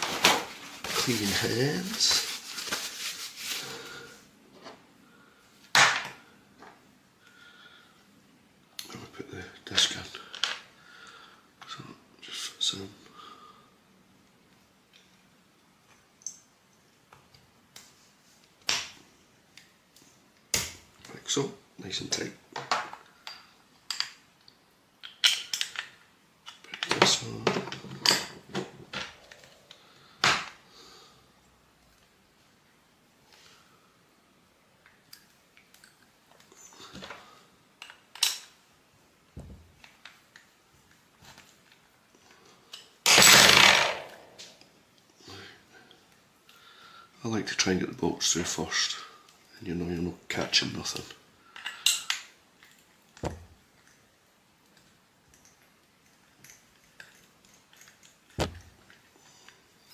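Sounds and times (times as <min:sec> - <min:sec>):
metal parts clicking and knocking: 0:42.7 - 0:44.1.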